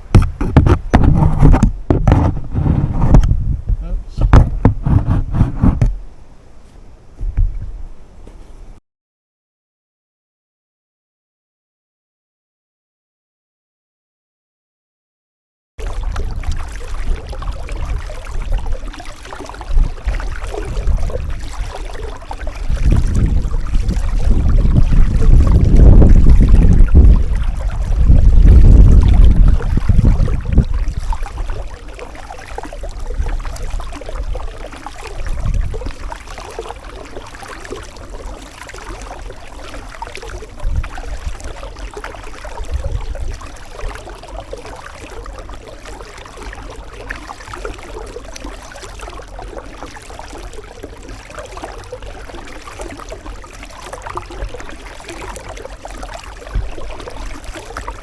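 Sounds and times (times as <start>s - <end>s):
paddle splashing water: 0.0s - 3.6s, 4.2s - 8.8s, 15.8s - 58.0s
wind rumble on microphone: 0.0s - 6.3s, 6.9s - 8.8s, 15.8s - 45.5s, 53.3s - 58.0s
water lapping at hull: 0.0s - 8.8s, 15.8s - 58.0s.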